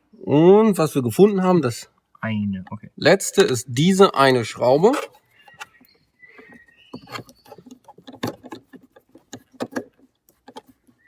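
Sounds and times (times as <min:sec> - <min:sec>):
short squeaks: 0:04.8 - 0:11.0
screwdriver clicking and scraping: 0:05.0 - 0:11.0.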